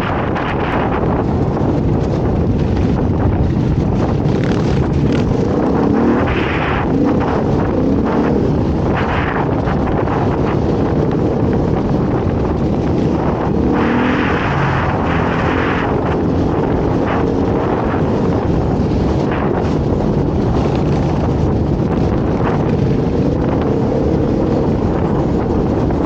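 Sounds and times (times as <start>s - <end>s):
dirt bike engine running: 0.0s - 26.0s
wind rushing over microphone: 0.0s - 26.0s.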